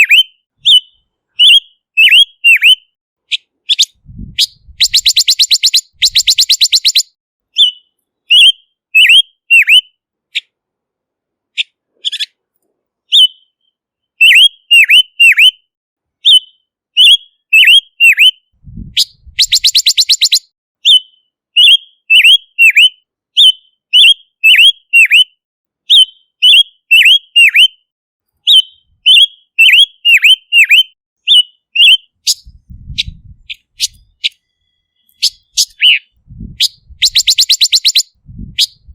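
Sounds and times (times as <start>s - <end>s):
bird whistled notes: 0.0s - 2.9s, 3.7s - 9.9s, 13.1s - 15.6s, 16.2s - 27.8s, 28.4s - 38.9s
buzzy bird chatter: 0.0s - 9.8s, 11.6s - 12.4s, 19.0s - 22.8s, 28.5s - 38.9s.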